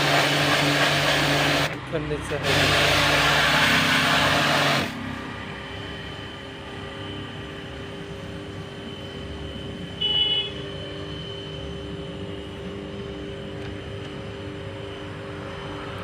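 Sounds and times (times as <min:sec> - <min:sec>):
pressure washer spraying water: 0:00.0 - 0:05.1.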